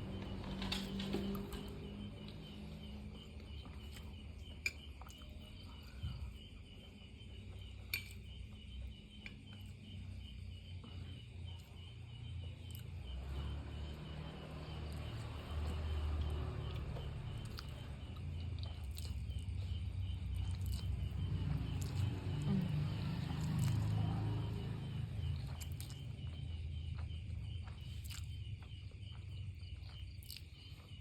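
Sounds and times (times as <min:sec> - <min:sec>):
chewing: 0:14.7 - 0:31.0.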